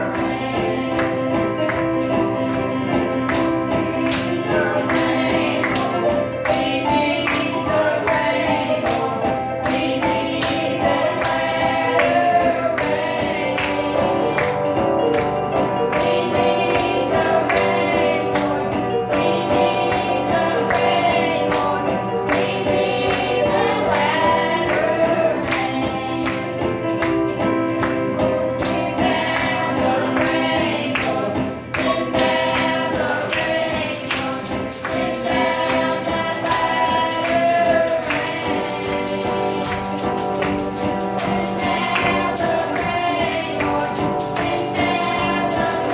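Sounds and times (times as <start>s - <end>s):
children's choir singing gospel: 0.0s - 45.9s
instrumental accompaniment: 0.0s - 45.9s
percussive beat: 30.6s - 45.9s.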